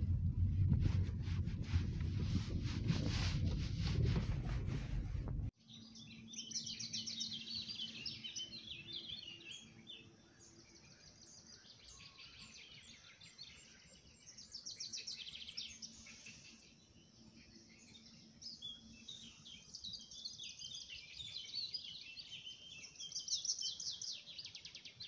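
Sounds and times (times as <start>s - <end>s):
car road noise: 0.0s - 5.5s
songbirds singing: 5.6s - 25.0s.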